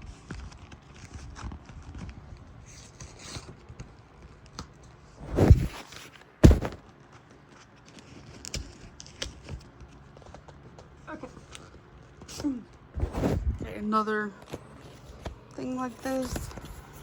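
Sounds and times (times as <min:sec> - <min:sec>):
package handling scrapes and clicks: 0:00.0 - 0:13.6
sharp knock: 0:06.4 - 0:06.8.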